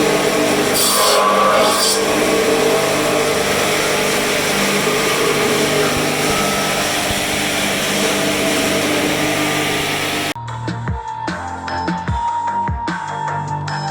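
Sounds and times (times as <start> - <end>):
steady motor hum: 0.0 - 10.4
woodworking machinery running: 0.0 - 10.4.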